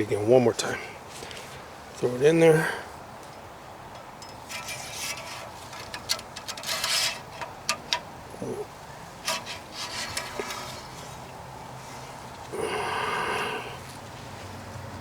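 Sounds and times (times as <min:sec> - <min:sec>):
metal on metal ticks: 0:03.9 - 0:08.1
dipstick scraping and rattling: 0:03.9 - 0:12.3.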